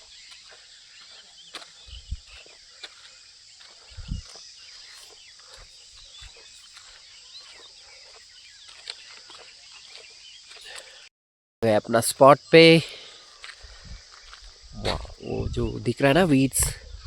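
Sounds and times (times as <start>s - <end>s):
birds chirping: 0.0s - 17.0s
low thumps: 14.7s - 16.8s.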